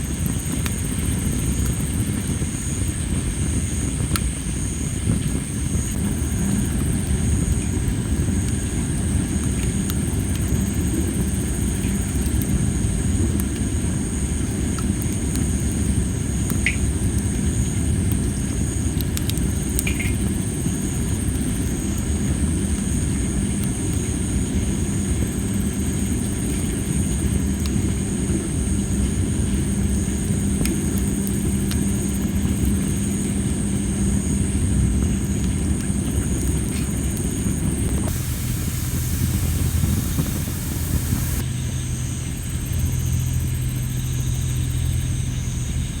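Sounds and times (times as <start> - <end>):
campfire flames rushing: 37.6 - 41.4
fire crackle: 37.7 - 41.4
insects trilling: 37.8 - 41.4
low engine-like rumble: 37.9 - 41.4.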